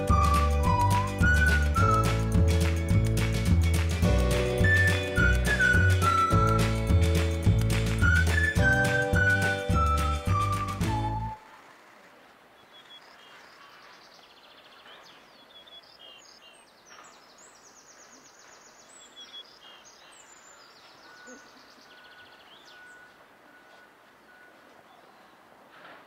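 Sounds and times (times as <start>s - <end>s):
faint outdoor ambience: 0.0s - 26.0s
small birds chirping and trilling: 12.5s - 25.4s.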